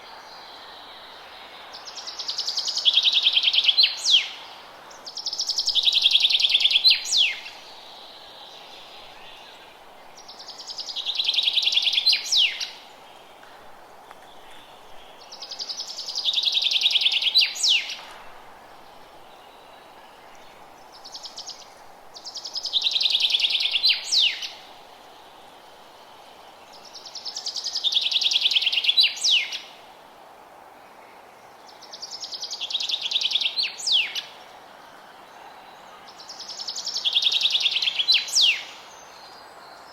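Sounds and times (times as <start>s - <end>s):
faint background hiss: 0.0s - 39.9s
songbird singing trilled song: 5.1s - 12.8s, 19.3s - 24.6s, 36.2s - 39.9s.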